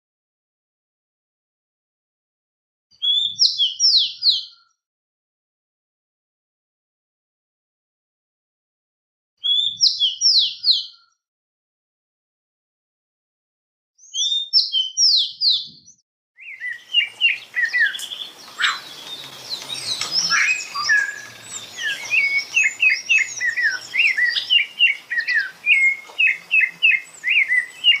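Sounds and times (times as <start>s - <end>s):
birds chirping and singing: 3.0s - 4.6s, 9.5s - 10.9s, 14.0s - 28.0s.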